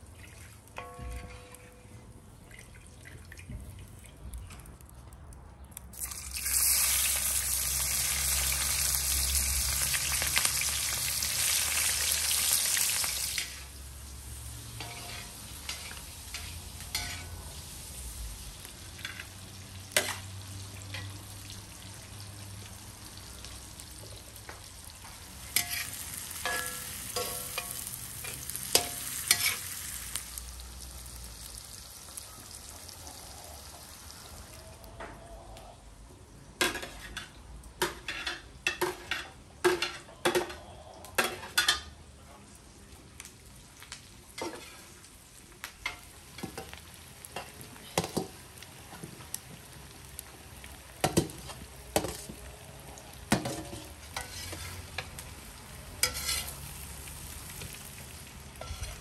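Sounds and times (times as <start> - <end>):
vegetables sizzling in oil: 6.0 - 34.4, 43.7 - 59.0
metal skimmer scraping pan: 56.0 - 56.6, 58.6 - 59.0.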